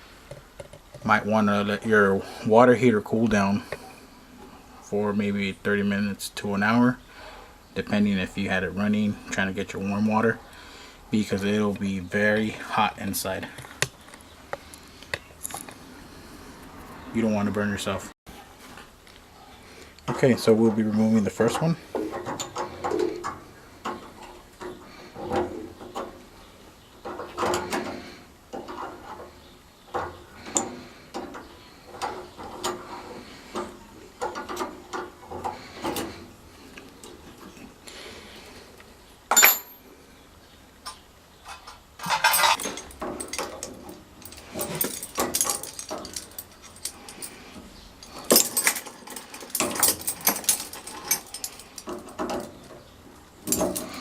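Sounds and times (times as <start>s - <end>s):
metallic tool clinks and clicks: 48.0s - 52.2s.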